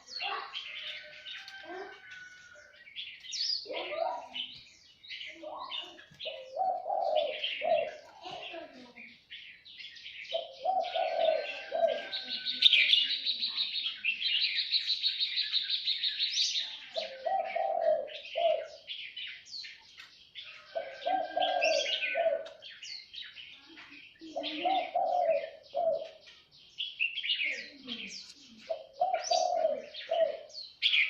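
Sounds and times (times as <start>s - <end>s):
songbirds chirping and trilling: 0.0s - 31.0s
dove cooing: 5.7s - 8.9s, 10.3s - 14.7s, 16.8s - 19.0s, 20.6s - 22.8s, 24.2s - 26.3s, 27.5s - 31.0s.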